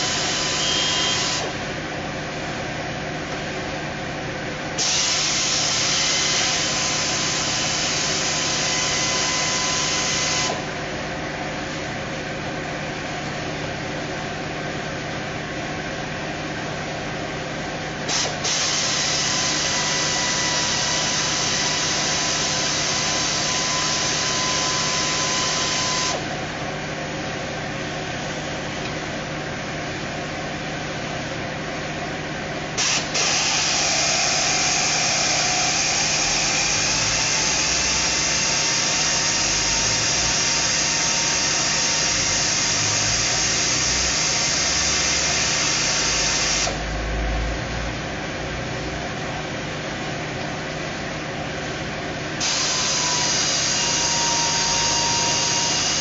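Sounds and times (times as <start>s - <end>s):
power tool whining: 0.0s - 1.7s, 4.8s - 10.8s, 18.1s - 26.4s, 32.8s - 46.9s, 52.4s - 56.0s
mechanical hum: 0.0s - 56.0s.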